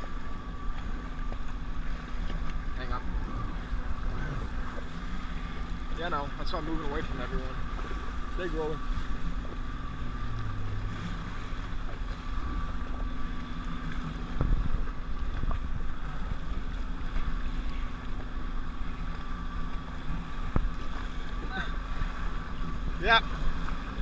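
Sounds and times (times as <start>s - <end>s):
jet ski engine running: 0.0s - 24.0s
wind buffeting microphone: 8.8s - 24.0s.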